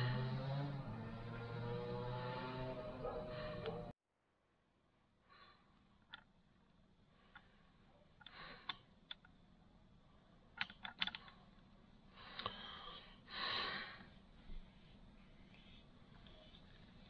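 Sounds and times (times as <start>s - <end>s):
small hard parts clicking: 10.5s - 12.6s.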